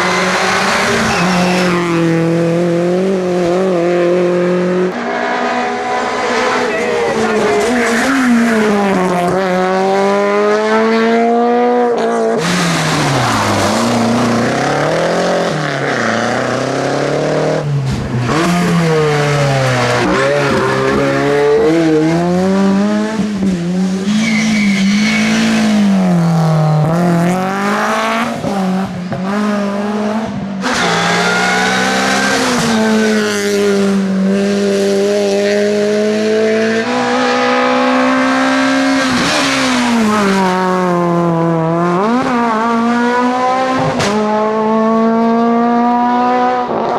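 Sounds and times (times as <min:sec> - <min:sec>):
rally car engines revving: 0:00.0 - 0:46.9.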